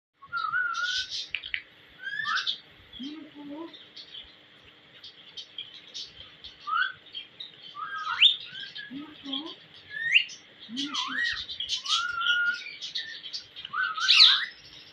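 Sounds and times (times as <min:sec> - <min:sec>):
parakeet whistles and chirps: 0:00.2 - 0:01.3, 0:02.0 - 0:02.6, 0:06.6 - 0:07.0, 0:07.7 - 0:08.9, 0:09.9 - 0:14.6.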